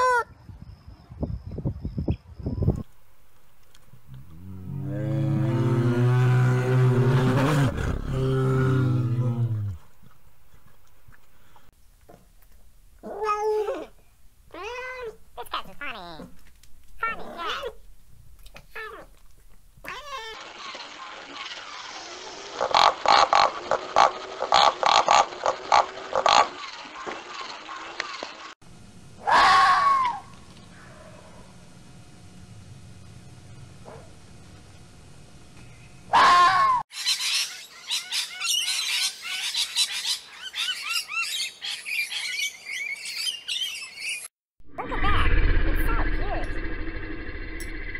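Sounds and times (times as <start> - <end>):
pigs grunting: 4.1 - 10.9
birds chirping and whistling: 37.0 - 44.3.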